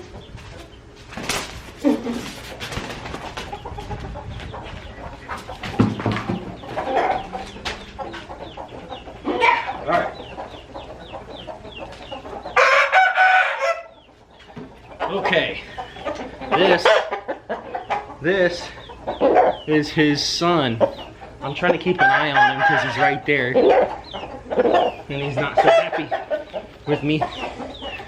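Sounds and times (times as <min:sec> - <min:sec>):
chickens clucking and squawking: 0:00.0 - 0:28.0
sharp knocks and rustles: 0:00.2 - 0:06.7
rooster crowing: 0:12.6 - 0:13.9, 0:22.0 - 0:23.2.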